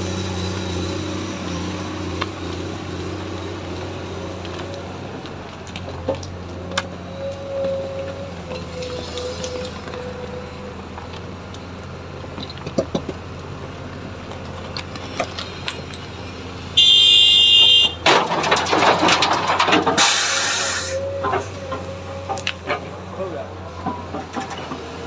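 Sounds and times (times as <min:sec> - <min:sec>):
excavator diesel engine running: 0:00.0 - 0:25.0
loud buzzing alarm tone: 0:16.8 - 0:18.0
loud rushing hiss: 0:20.0 - 0:21.0.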